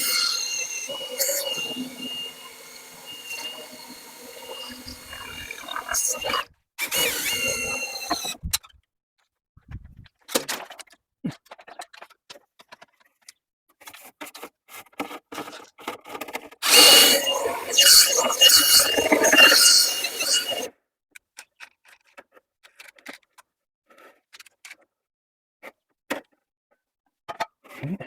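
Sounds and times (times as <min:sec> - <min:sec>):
drill whining: 0:00.0 - 0:08.4, 0:16.6 - 0:20.7.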